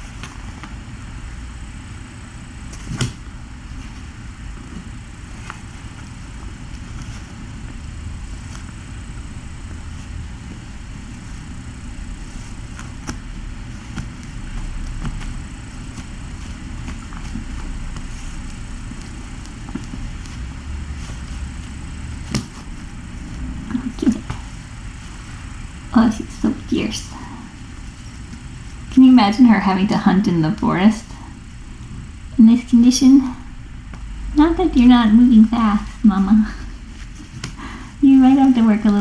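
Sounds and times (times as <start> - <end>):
faint high whine: 0.0 - 39.0
room noise rumble and hiss: 0.0 - 39.0.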